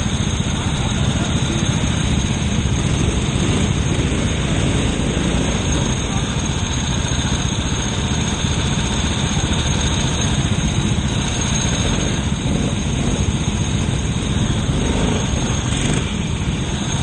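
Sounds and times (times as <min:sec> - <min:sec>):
kart engine running: 0:00.0 - 0:17.0
road rumble: 0:00.0 - 0:17.0.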